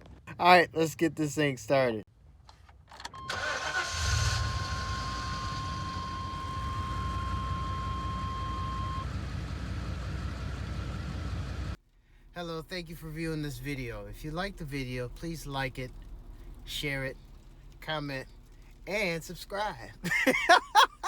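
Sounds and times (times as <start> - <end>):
van engine starting and idling: 3.0 - 21.0
dashboard warning beep: 5.4 - 9.2.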